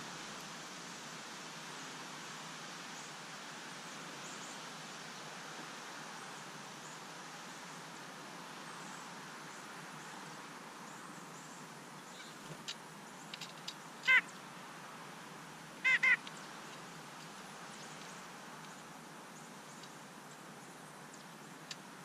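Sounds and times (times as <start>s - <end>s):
loud bird calls: 11.4s - 14.5s, 15.8s - 16.7s.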